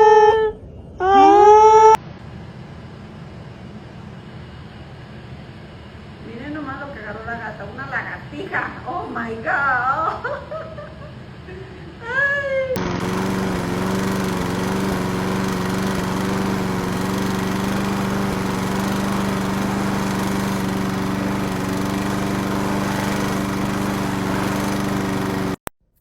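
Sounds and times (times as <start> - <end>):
motor humming: 12.8 - 25.7.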